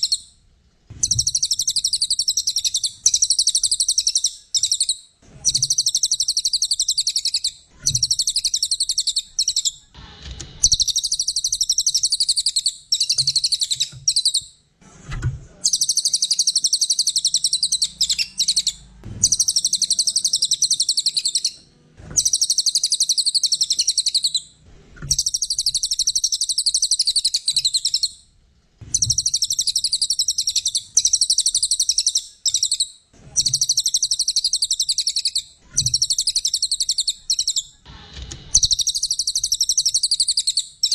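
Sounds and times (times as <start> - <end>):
bird chattering trills: 1.0 - 9.9, 15.7 - 21.6, 22.2 - 24.5, 38.5 - 40.9.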